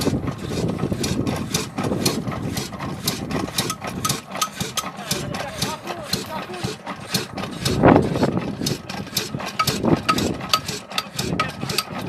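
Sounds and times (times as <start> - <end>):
stationary engine ticking: 0.0 - 12.0.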